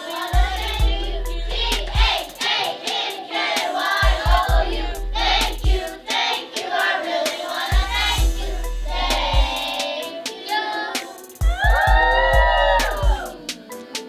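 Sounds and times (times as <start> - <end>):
children singing in chorus: 0.0 - 14.0
low thumps: 0.4 - 2.4, 4.1 - 6.0, 7.7 - 9.7
sharp claps: 12.8 - 13.2.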